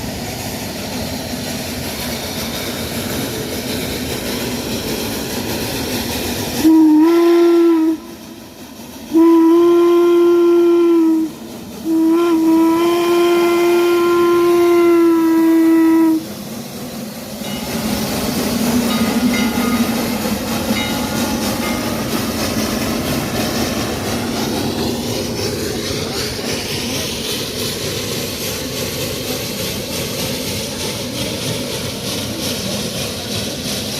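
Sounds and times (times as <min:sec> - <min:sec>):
steam locomotive running: 0:00.0 - 0:33.9
steam whistle: 0:06.6 - 0:08.2, 0:09.1 - 0:16.4
rail clatter: 0:16.4 - 0:33.9.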